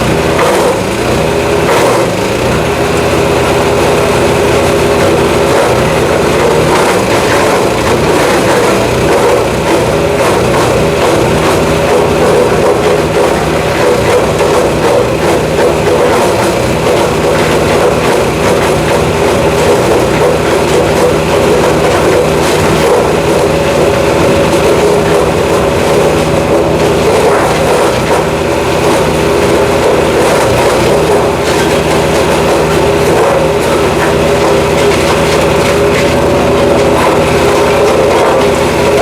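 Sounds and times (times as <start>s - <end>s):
wood chipper engine running: 0.0s - 39.0s.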